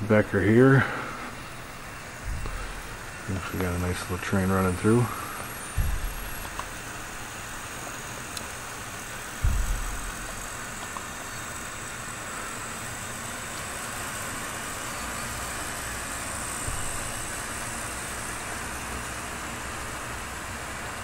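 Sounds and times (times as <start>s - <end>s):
model train running rumble: 0.0s - 21.0s
low thump: 1.4s - 4.1s, 5.7s - 7.6s, 9.4s - 10.7s, 16.6s - 17.5s.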